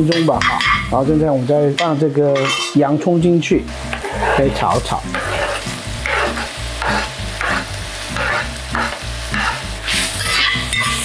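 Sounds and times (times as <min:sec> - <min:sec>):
bacon and onion sizzling: 0:00.0 - 0:11.0
metal spoon scraping pot: 0:02.4 - 0:02.8, 0:03.9 - 0:11.0.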